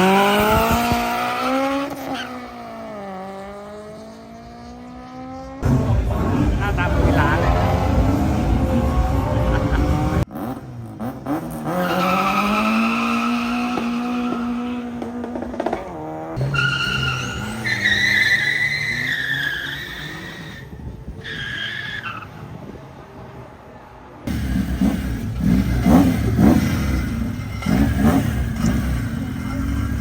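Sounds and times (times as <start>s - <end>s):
car engine running: 5.6s - 10.2s
tyres squealing: 16.4s - 22.3s.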